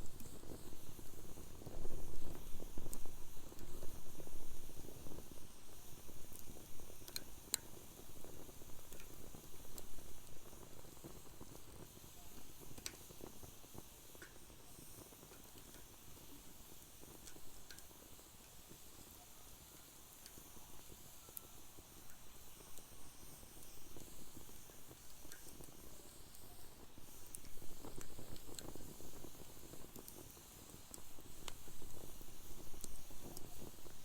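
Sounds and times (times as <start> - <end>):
fire pops: 0.0 - 18.7, 22.0 - 34.0
wood fire crackling: 0.0 - 34.0.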